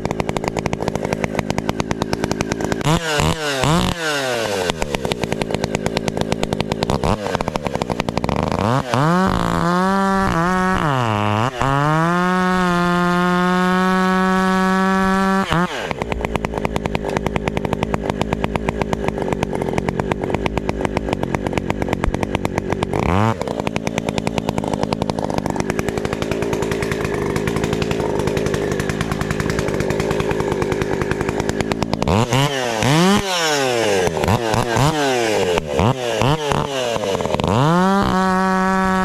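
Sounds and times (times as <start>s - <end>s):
two-stroke chainsaw revving and idling: 0.0s - 39.0s.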